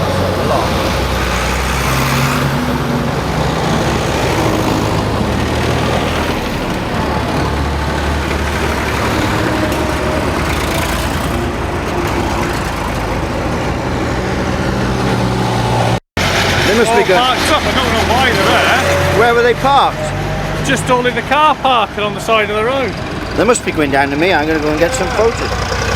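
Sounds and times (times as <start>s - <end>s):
tractors driving past: 0.0s - 25.9s.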